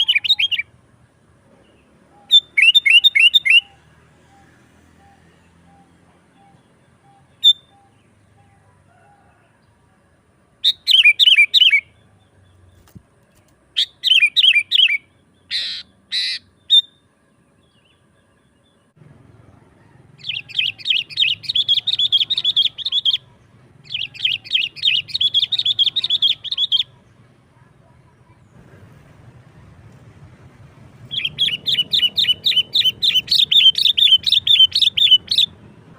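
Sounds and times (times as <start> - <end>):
bulbul calling: 0.0 - 0.8, 1.6 - 8.7, 10.6 - 13.0, 13.7 - 17.0, 19.5 - 28.6, 30.9 - 35.7
bird chattering rapidly: 13.8 - 16.5, 20.2 - 27.0, 31.1 - 35.5.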